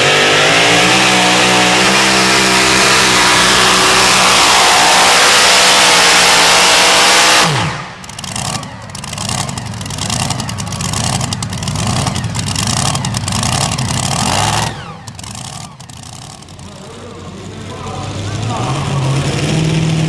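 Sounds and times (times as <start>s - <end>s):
truck engine at full throttle: 0.0s - 20.0s
low engine rumble: 7.5s - 20.0s.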